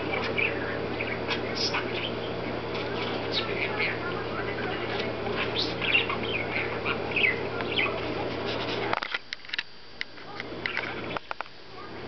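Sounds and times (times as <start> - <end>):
parakeet chattering: 0.0 - 8.9
steady low hum: 0.0 - 12.0.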